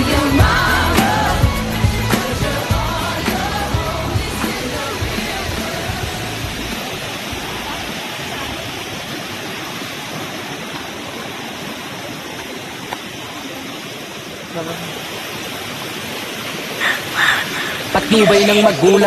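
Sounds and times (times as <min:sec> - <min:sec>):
music: 0:00.0 - 0:07.7
rushing water: 0:00.0 - 0:19.0.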